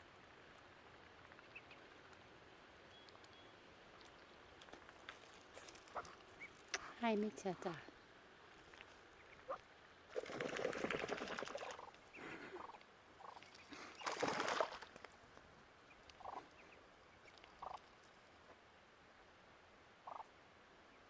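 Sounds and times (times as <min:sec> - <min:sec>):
ducklings peeping: 0:01.0 - 0:04.6, 0:11.6 - 0:14.7, 0:15.8 - 0:18.6, 0:20.0 - 0:21.0.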